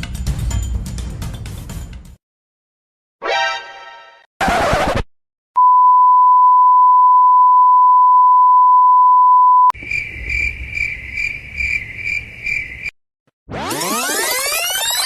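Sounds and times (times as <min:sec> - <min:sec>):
censor bleep: 0:05.6 - 0:09.8
crickets chirping: 0:09.8 - 0:12.9.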